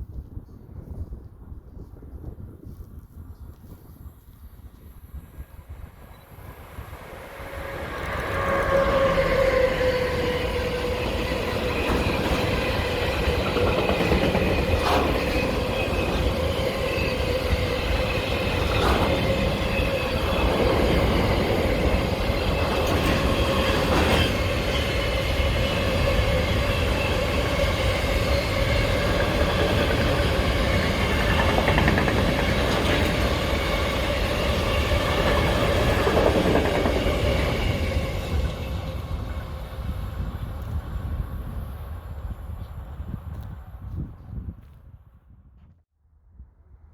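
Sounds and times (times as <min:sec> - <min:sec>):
train rumbling past: 0:04.9 - 0:44.0
wheels clicking over rail joints: 0:11.1 - 0:16.9, 0:27.5 - 0:37.4.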